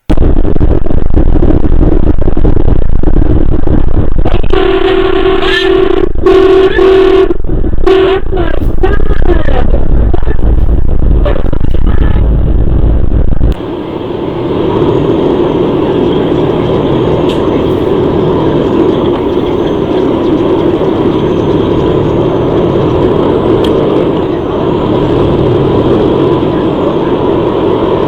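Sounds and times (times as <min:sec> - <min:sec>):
loud low rumble: 0:00.0 - 0:28.0
engine and tyre rumble: 0:08.6 - 0:28.0.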